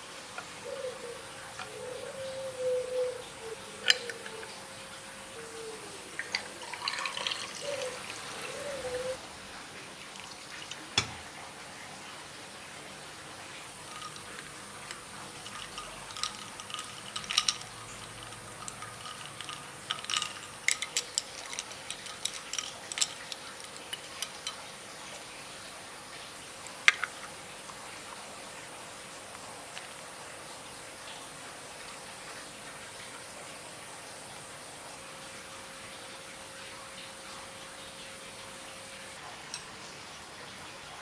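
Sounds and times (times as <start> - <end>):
utensils clinking on dishes: 0.0 - 9.2, 13.7 - 25.5, 26.6 - 27.4, 39.4 - 39.9.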